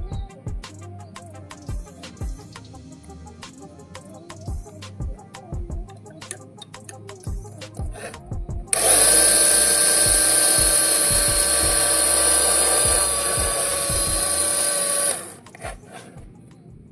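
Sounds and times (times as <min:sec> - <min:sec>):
small electric motor whining: 0:08.0 - 0:16.2.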